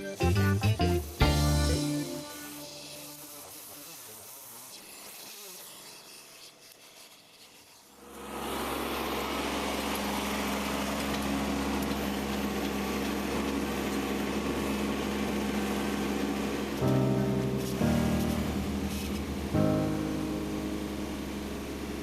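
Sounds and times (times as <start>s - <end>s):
engine starting and running: 8.0s - 22.0s.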